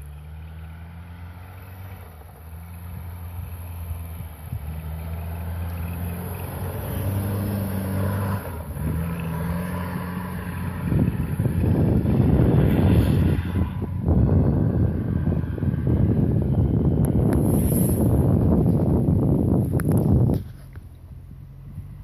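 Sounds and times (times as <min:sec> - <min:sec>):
car engine revving: 0:00.0 - 0:20.2
wind buffeting microphone: 0:02.8 - 0:22.0.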